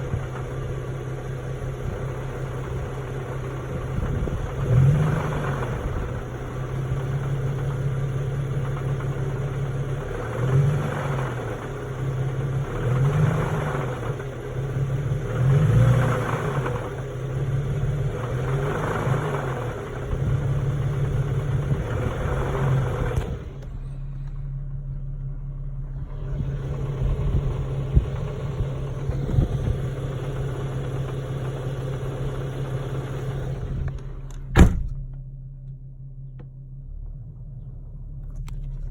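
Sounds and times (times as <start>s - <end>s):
car engine idling: 0.0s - 38.9s
engine rattle: 0.0s - 38.9s
sharp thump: 34.4s - 35.3s.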